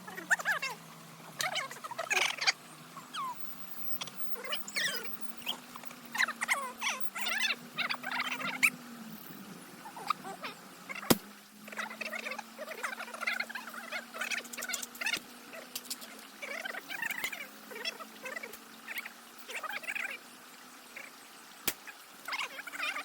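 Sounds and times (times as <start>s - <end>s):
birds chirping: 0.0s - 23.0s
sharp crack: 11.1s - 11.3s.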